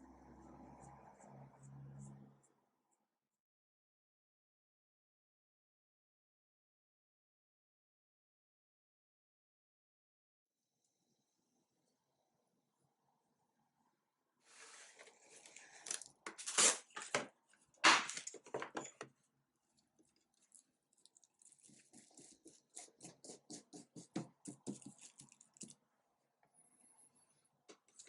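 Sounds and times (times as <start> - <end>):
dry scratching strokes on surface: 21.4 - 25.7.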